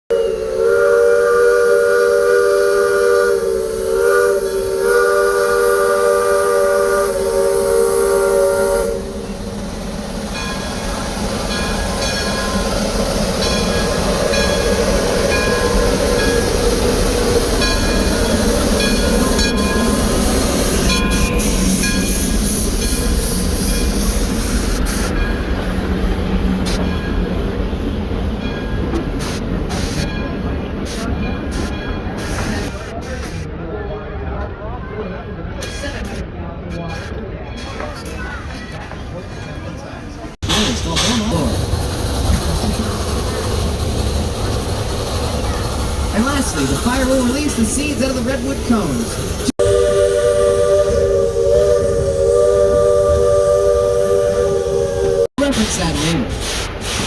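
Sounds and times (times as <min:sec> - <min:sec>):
steam locomotive whistle: 0:00.1 - 0:09.4, 0:13.4 - 0:25.1, 0:49.5 - 0:57.0
train rumble: 0:00.1 - 0:57.0
hissing steam: 0:00.4 - 0:27.0, 0:40.4 - 0:57.0.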